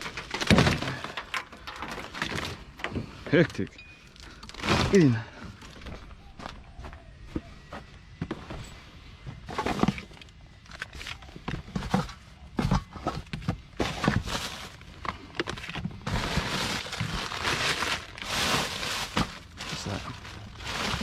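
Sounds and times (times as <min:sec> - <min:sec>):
objects knocking and clattering: 0:00.0 - 0:03.7, 0:11.4 - 0:17.5
rubbish rustling: 0:00.0 - 0:06.8, 0:08.3 - 0:21.0.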